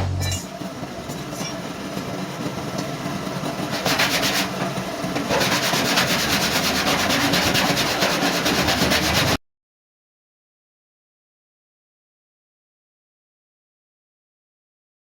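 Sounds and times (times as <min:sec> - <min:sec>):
sanding car body panels: 0:03.6 - 0:09.4.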